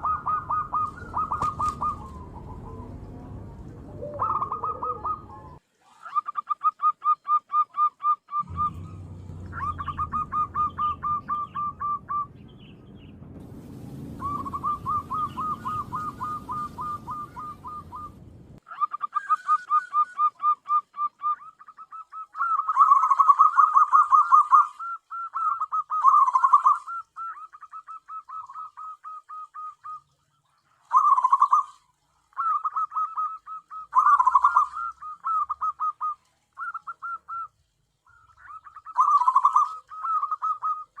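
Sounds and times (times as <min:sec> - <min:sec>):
dove cooing rapidly: 0:00.0 - 0:12.4, 0:14.2 - 0:30.0, 0:30.9 - 0:37.5, 0:38.1 - 0:41.0
low rumble: 0:01.8 - 0:04.3, 0:08.4 - 0:18.6.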